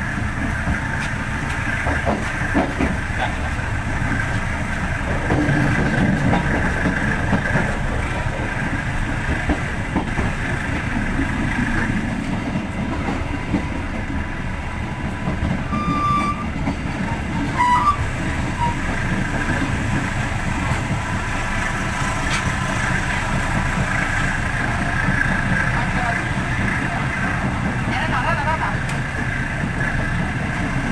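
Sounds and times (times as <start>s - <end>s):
train wheels rumbling on track: 0.0s - 30.9s.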